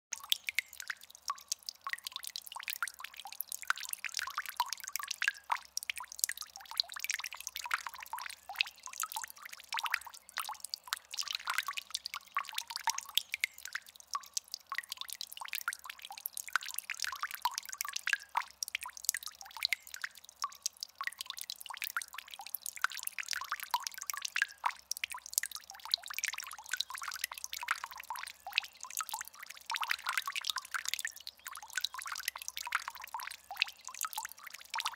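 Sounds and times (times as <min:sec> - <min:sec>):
fountain water trickling: 0:00.1 - 0:34.9.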